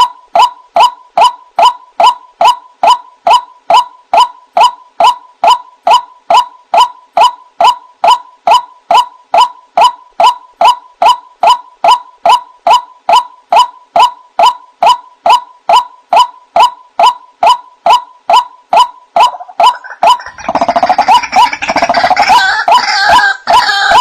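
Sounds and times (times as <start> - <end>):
waterhen calling: 19.2 - 24.0.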